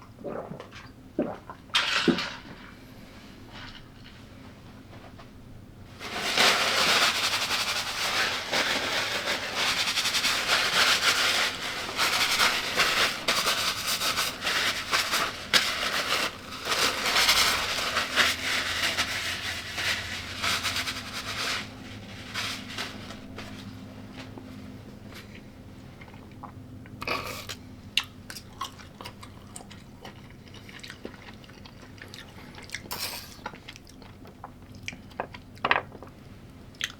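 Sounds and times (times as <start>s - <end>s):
crunchy food being chewed: 25.1s - 36.9s.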